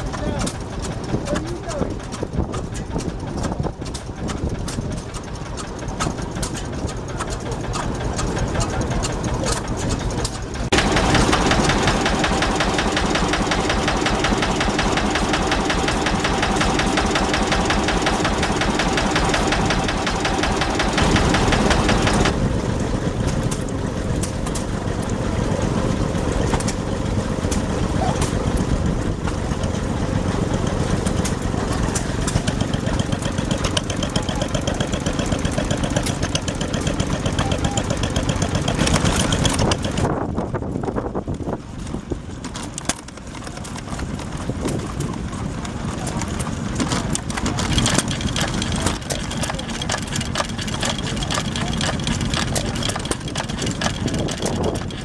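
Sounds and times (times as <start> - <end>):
stationary engines running: 0.0 - 55.0.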